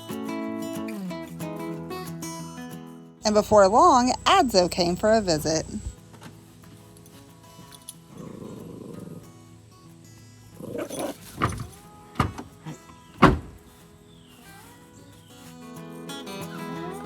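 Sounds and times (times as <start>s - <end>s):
pet animal cries or growls: 8.1s - 9.4s, 10.6s - 11.5s
background music: 15.6s - 17.0s.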